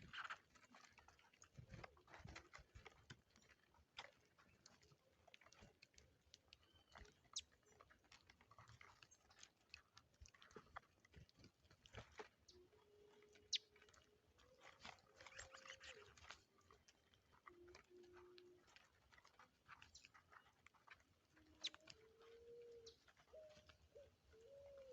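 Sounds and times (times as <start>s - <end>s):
birds pecking seed: 0.0s - 24.9s
bird chirp: 12.5s - 14.0s, 14.6s - 16.4s, 21.4s - 24.9s.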